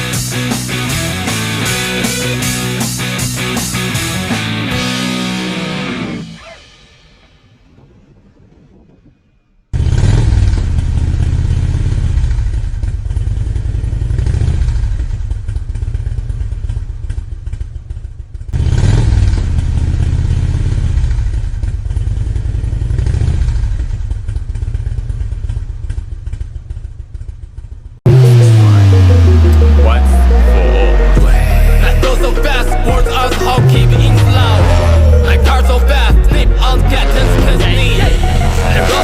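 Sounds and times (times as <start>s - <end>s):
motorcycle engine running: 0.0s - 7.1s, 9.8s - 29.7s.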